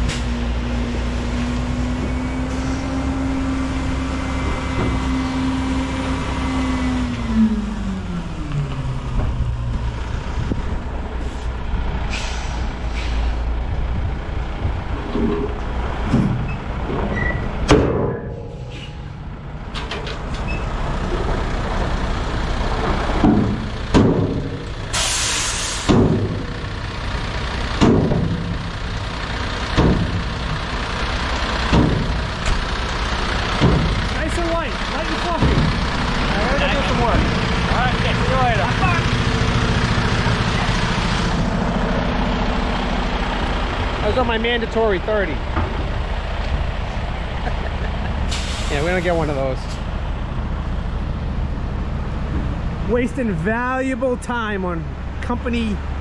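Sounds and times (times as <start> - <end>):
diesel truck engine running: 0.0 - 56.0
air brakes hissing: 2.4 - 3.0, 11.2 - 13.5, 24.9 - 26.0, 48.2 - 49.9.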